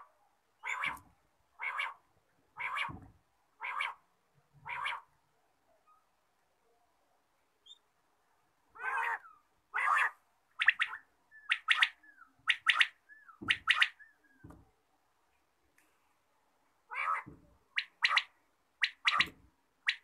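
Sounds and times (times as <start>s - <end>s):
game bird calling: 16.9s - 19.3s.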